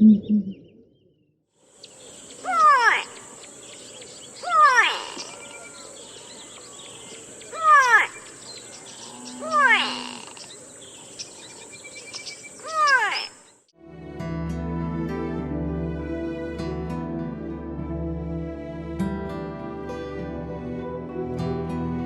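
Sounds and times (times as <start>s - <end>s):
high insect buzz: 1.6s - 13.6s.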